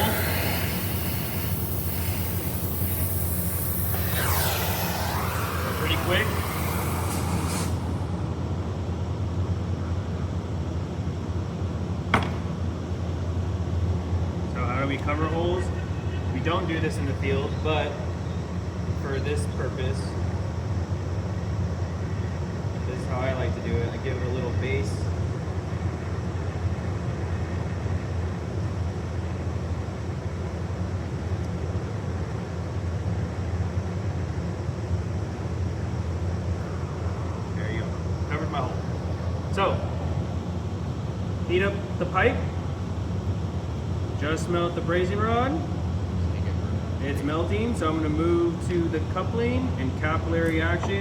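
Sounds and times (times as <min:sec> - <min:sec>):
torch flame rushing: 0:00.0 - 0:09.2.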